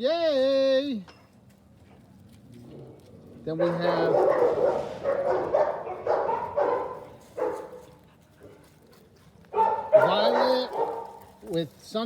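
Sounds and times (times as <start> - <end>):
dogs barking: 3.5 - 7.9, 9.5 - 11.6.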